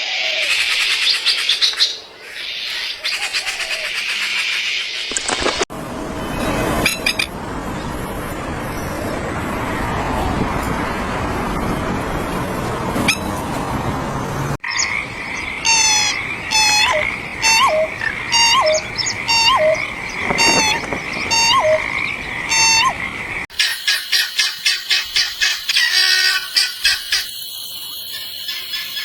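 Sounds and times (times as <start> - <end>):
steady rushing noise: 4.7 - 16.5, 17.1 - 23.5
steady high drone: 14.7 - 23.5
rasping animal call: 14.8 - 23.1.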